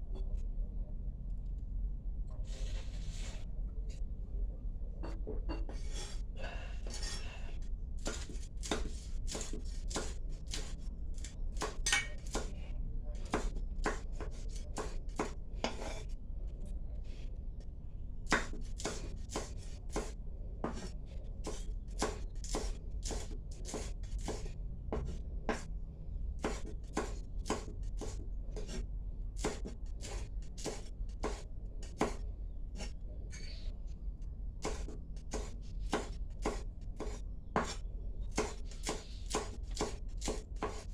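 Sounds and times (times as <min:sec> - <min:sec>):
knife chopping on cutting board: 0:08.0 - 0:12.6, 0:13.2 - 0:16.0, 0:18.3 - 0:25.7, 0:26.4 - 0:28.8, 0:29.4 - 0:32.2, 0:34.6 - 0:40.9.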